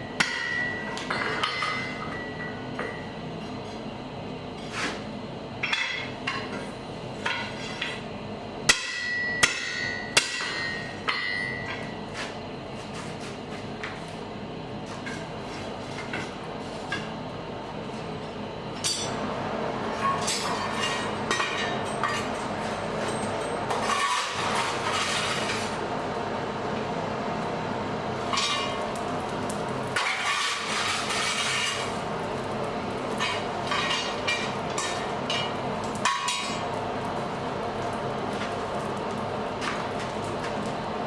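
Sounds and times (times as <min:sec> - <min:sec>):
hammer striking anvil: 0:00.2 - 0:03.0, 0:08.7 - 0:11.9.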